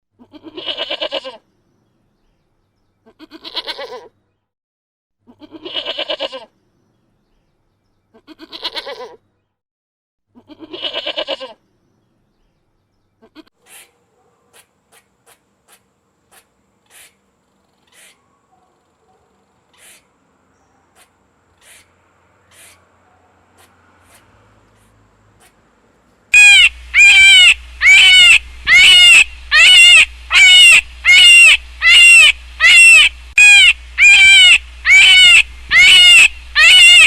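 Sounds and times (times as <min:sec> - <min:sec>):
goat bleating: 0:00.2 - 0:01.4, 0:03.0 - 0:04.1, 0:05.3 - 0:06.5, 0:08.1 - 0:09.2, 0:10.4 - 0:11.6.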